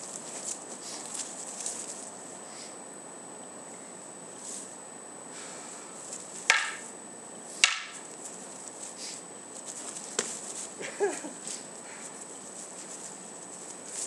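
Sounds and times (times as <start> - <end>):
wooden swords clacking: 6.4 - 6.9, 7.6 - 8.2.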